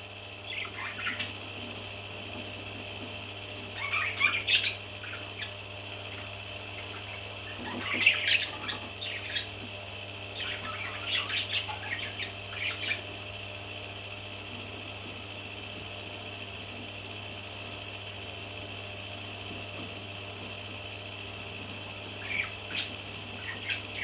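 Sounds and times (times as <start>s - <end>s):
electrical hum and hiss: 0.0s - 24.0s
baby parrots squawking and chirping: 0.5s - 1.3s, 3.8s - 5.5s, 6.8s - 9.5s, 10.4s - 13.1s, 22.2s - 24.0s.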